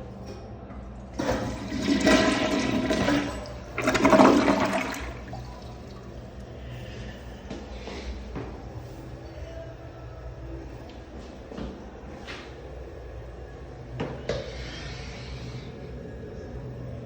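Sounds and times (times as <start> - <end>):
toilet flushing: 1.1 - 6.4.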